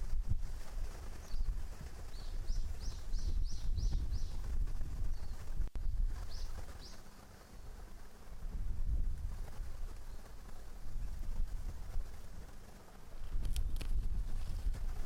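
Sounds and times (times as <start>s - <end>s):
small bird singing: 1.1s - 7.3s.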